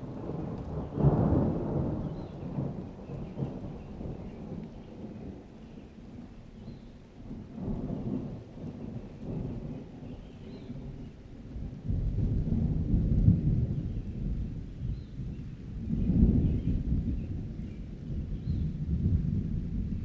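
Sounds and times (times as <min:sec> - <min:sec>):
thunder rumbling: 0:00.0 - 0:05.4, 0:11.6 - 0:20.0
rain: 0:00.0 - 0:20.0.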